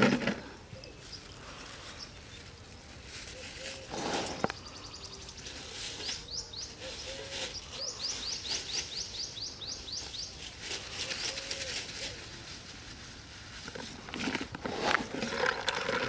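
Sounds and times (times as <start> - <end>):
plastic bag rustling: 0.0 - 4.7, 10.1 - 16.0
bird chirping: 3.4 - 11.5.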